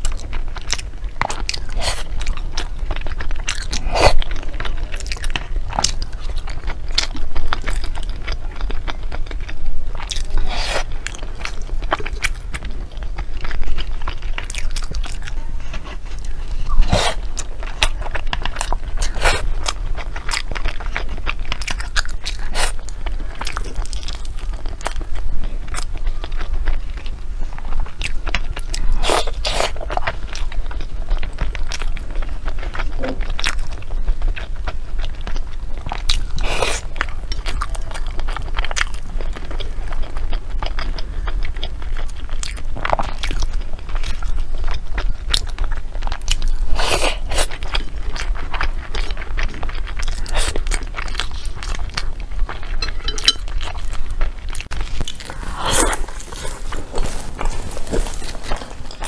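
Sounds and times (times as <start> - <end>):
chewing mouth clicks and smacks: 0.0 - 4.4, 27.9 - 59.0
bite into fried food: 0.0 - 59.0.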